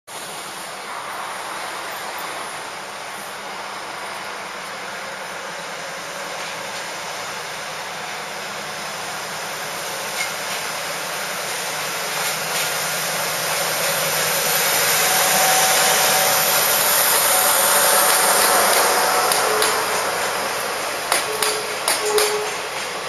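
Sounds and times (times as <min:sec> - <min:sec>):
train running with hiss: 0:00.1 - 0:23.0.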